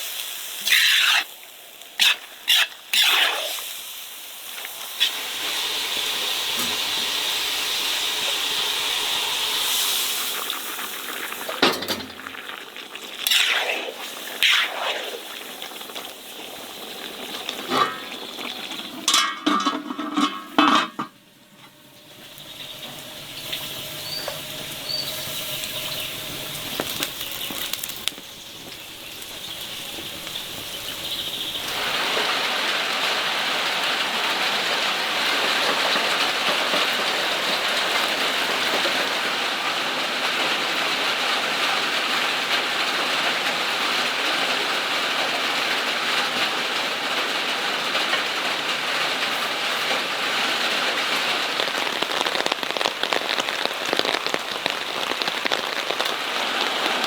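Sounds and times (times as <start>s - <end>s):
steady hiss: 0.0s - 40.1s, 48.4s - 57.0s
dishes and utensils clinking: 19.0s - 21.2s.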